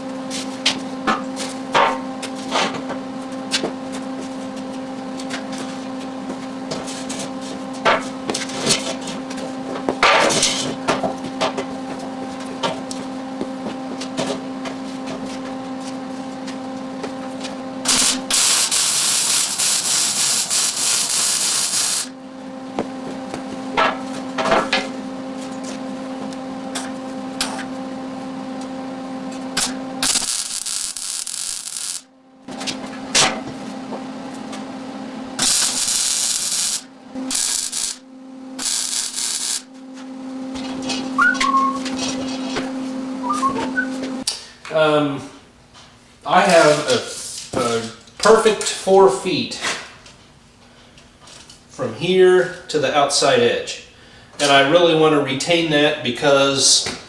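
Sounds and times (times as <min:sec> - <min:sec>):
electrical hum: 0:00.0 - 0:57.0
welding arc sizzling: 0:00.2 - 0:44.3, 0:46.3 - 0:49.4.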